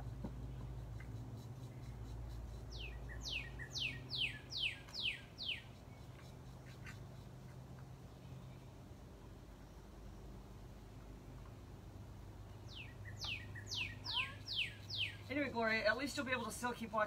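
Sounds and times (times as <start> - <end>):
bird chirping: 0.0 - 8.8, 12.5 - 16.5
low steady hum: 0.0 - 17.0.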